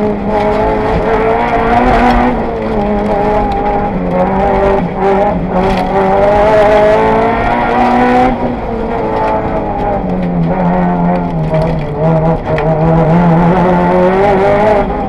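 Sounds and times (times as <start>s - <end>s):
car engine at full throttle: 0.0s - 15.0s.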